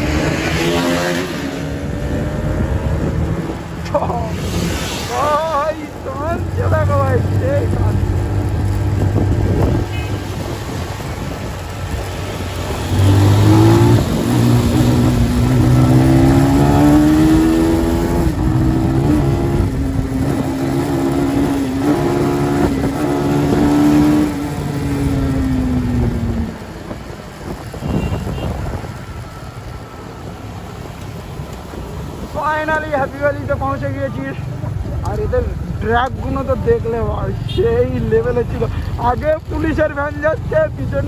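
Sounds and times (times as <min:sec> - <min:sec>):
motorcycle engine revving: 0:00.0 - 0:32.3
wind and road noise: 0:00.0 - 0:41.0.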